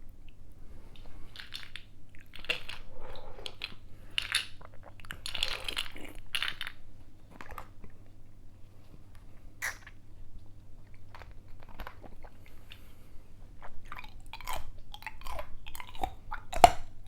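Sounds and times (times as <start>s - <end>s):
ice being chewed: 1.0s - 8.1s, 10.8s - 17.0s.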